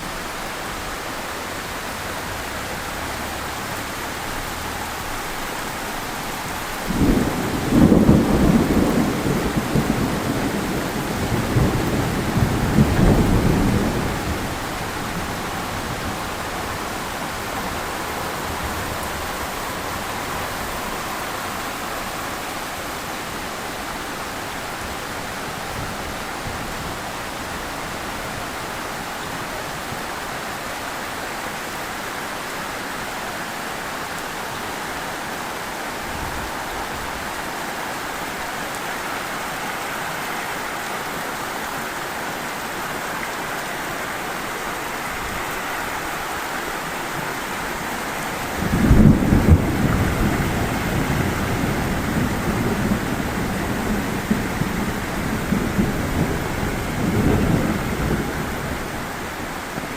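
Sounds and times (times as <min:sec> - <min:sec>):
heavy rain falling: 0:00.0 - 0:59.9
thunder rumble: 0:02.0 - 0:30.7, 0:47.8 - 0:59.9.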